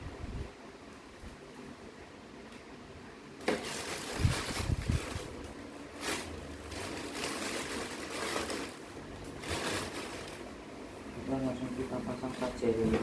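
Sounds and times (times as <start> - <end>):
packaging rustling: 3.4 - 10.6.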